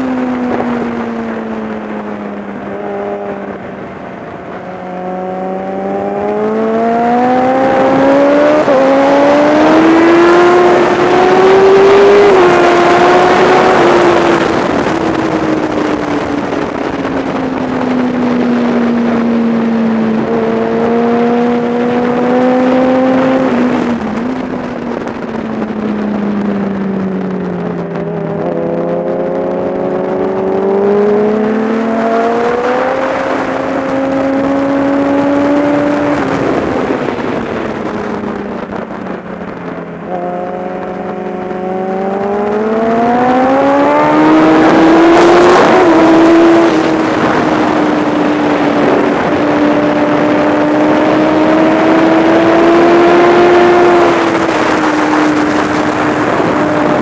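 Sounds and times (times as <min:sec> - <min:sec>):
motorcycle engine revving: 0:00.0 - 0:57.0
wind rushing: 0:00.2 - 0:57.0.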